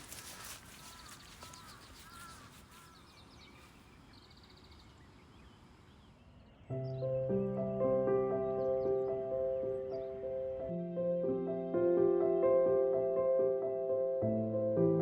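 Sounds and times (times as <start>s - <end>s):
birds calling: 0.0s - 10.8s
bird trills: 0.8s - 3.7s.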